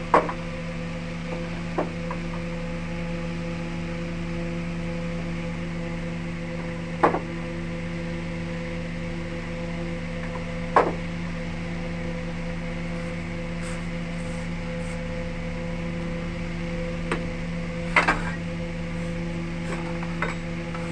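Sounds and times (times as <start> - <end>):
wood lathe humming: 11.4 - 20.9.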